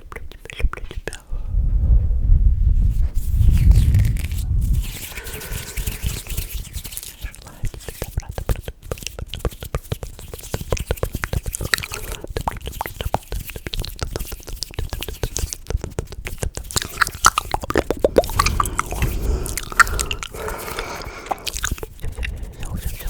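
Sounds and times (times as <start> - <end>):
wet mouth clicks and smacks: 0.0 - 1.2, 3.4 - 23.0
breathy hiss: 5.1 - 6.4, 17.9 - 22.7.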